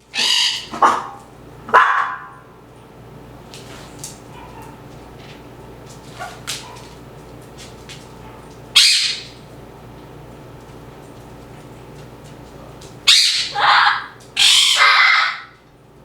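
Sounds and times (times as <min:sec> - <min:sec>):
parrot squawking: 0:00.1 - 0:01.1, 0:08.8 - 0:09.4, 0:13.1 - 0:15.6.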